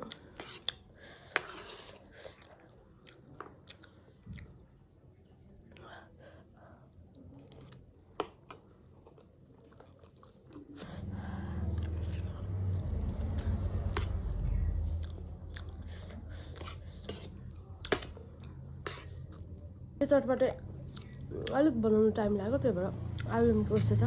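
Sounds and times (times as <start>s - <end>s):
chewing crunchy snack: 9.0s - 10.9s
low rumble: 10.8s - 16.6s.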